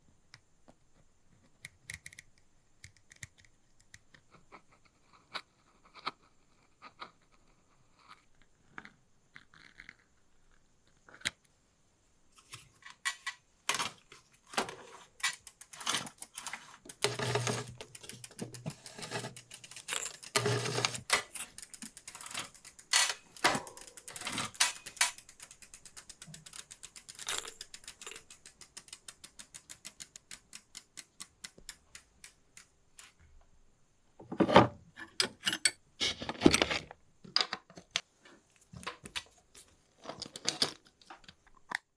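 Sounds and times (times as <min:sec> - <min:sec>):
metal clicks of bicycle parts: 0:12.5 - 0:33.1
fast even ticking: 0:15.4 - 0:32.8.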